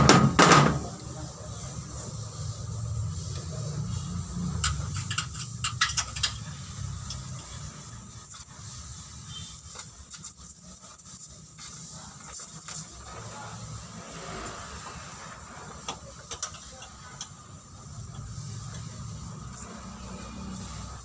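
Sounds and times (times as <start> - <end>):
sharp clicks and knocks: 4.6 - 7.3.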